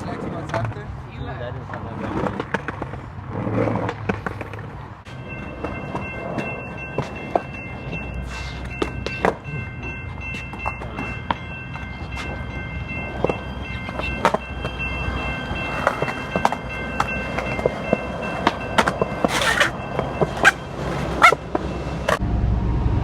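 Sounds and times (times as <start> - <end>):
skateboard wheels rolling on pavement: 0.0 - 22.2
skateboard clacks: 1.7 - 4.8, 18.4 - 19.7.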